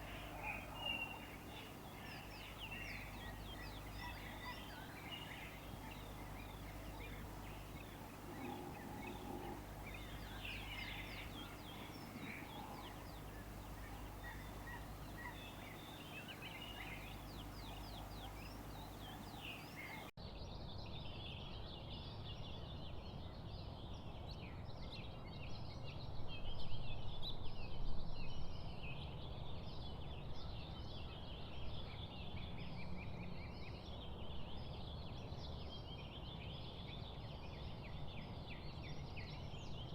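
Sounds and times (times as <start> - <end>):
steady low rumble: 0.0 - 20.1
songbirds chirping and trilling: 0.0 - 27.4, 28.4 - 39.9.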